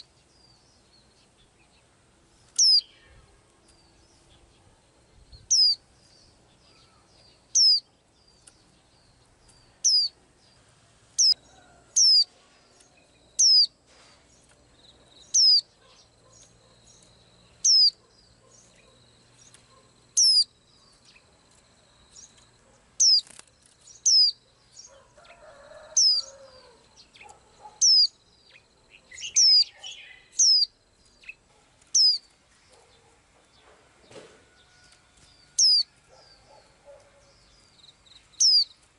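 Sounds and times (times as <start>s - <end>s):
pet bird chirping: 2.5s - 10.2s, 11.2s - 11.4s, 12.0s - 12.3s, 13.0s - 13.8s, 14.8s - 33.2s, 35.5s - 38.8s.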